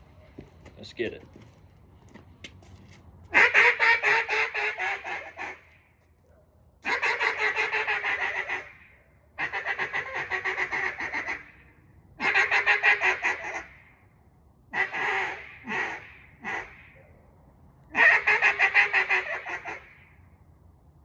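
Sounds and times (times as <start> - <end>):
duck call quacking: 3.3 - 5.7, 6.8 - 11.5, 12.2 - 13.8, 14.7 - 17.0, 17.9 - 20.1.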